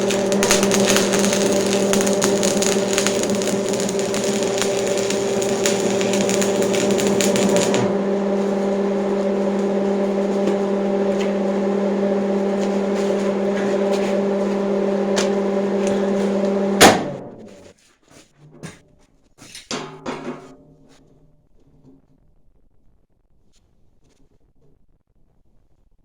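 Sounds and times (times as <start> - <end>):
electric power tool motor humming: 0.0 - 16.9
grinding hiss: 0.0 - 16.9.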